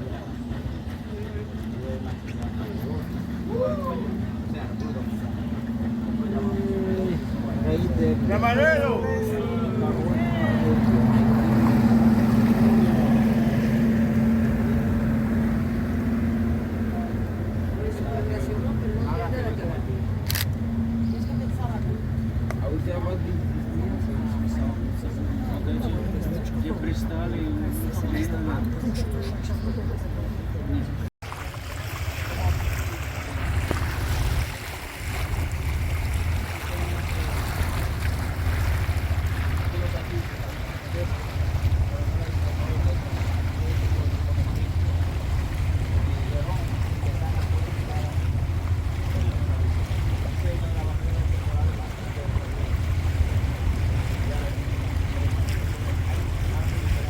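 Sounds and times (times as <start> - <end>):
outboard engine running: 0.0 - 57.0
water rushing past hull: 0.0 - 57.0
wind buffeting microphone: 31.8 - 57.0.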